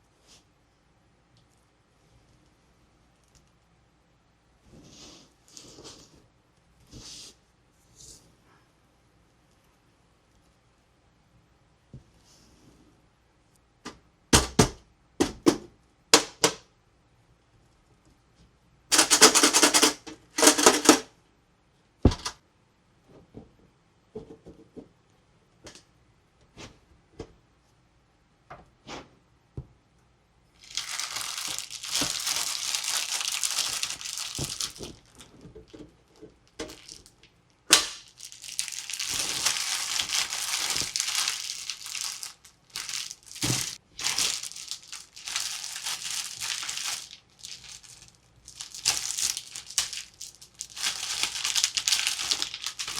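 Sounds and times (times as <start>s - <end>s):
packaging crinkling and rustling: 18.9s - 21.1s, 30.6s - 52.9s.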